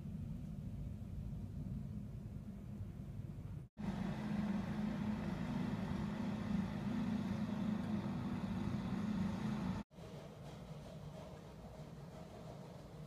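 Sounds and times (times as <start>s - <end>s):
vehicle engine running: 3.8s - 9.9s.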